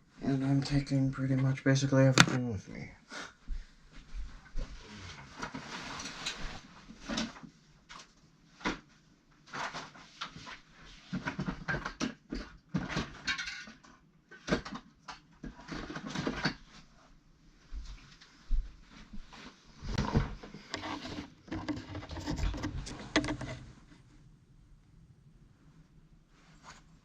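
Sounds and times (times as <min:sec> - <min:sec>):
handling noise knocks and clicks: 0:02.2 - 0:02.4, 0:19.9 - 0:23.8.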